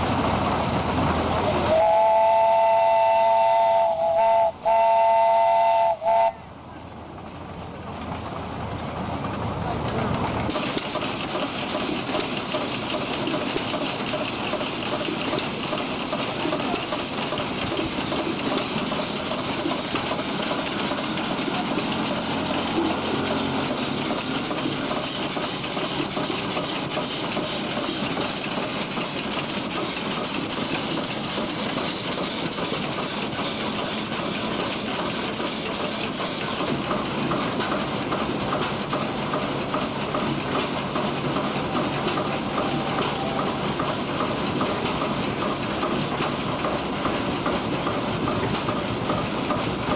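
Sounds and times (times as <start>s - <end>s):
steam engine beat: 1.2s - 6.4s, 10.5s - 49.9s
steam hissing: 10.5s - 49.9s.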